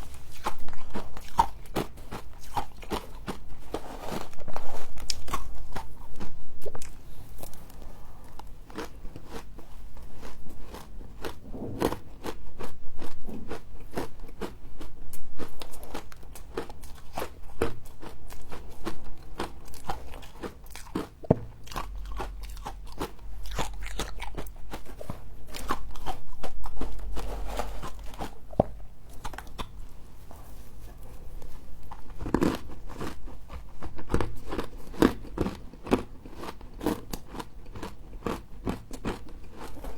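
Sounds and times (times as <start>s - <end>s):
crunchy chewing: 0.0s - 39.9s
low rumble: 11.4s - 13.5s.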